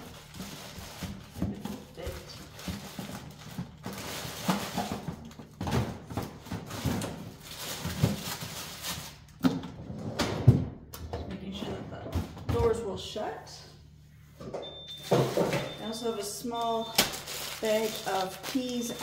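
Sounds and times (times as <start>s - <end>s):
packaging rustling: 0.0s - 5.6s, 6.3s - 9.4s, 16.5s - 19.0s
frozen food packages knocking: 0.0s - 9.6s, 16.6s - 19.0s.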